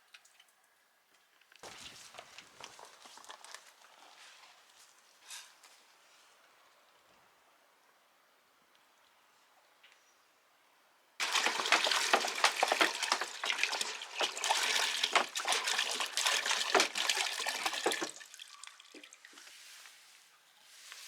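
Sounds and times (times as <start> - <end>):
water pouring and splashing: 11.2 - 19.9.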